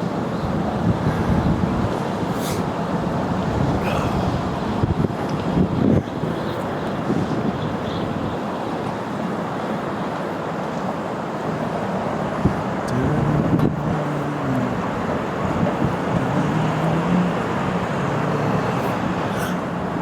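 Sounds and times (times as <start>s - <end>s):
distant traffic: 0.0s - 20.0s
wind: 0.0s - 20.0s
low wavering hum: 12.8s - 19.5s.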